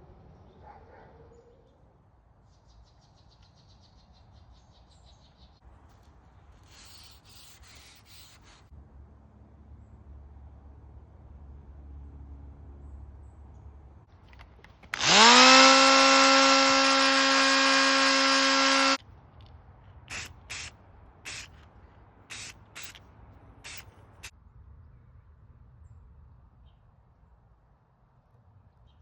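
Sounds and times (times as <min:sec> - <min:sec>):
short bursts of hiss: 0:06.6 - 0:08.7, 0:20.1 - 0:20.7, 0:21.3 - 0:21.6, 0:22.3 - 0:23.0, 0:23.6 - 0:24.3
electric power tool whining: 0:14.9 - 0:19.0.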